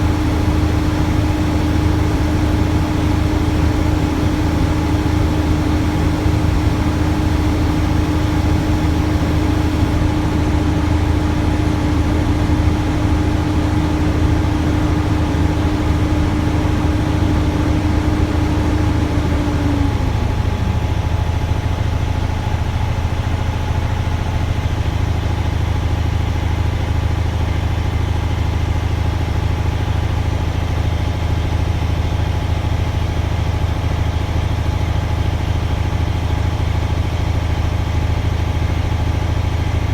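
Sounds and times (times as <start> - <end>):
air compressor whine: 0.0 - 23.1
diesel engine running: 0.0 - 39.9.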